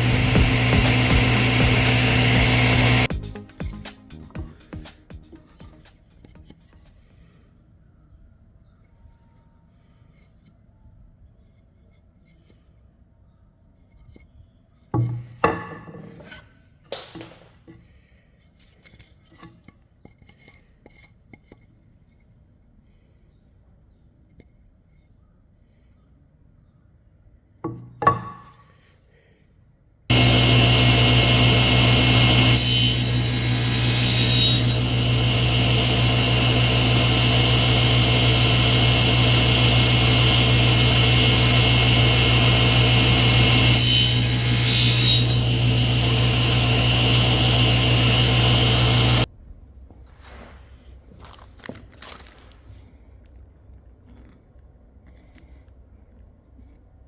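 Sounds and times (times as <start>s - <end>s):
power tool cutting wood: 0.0s - 3.1s, 30.1s - 49.3s.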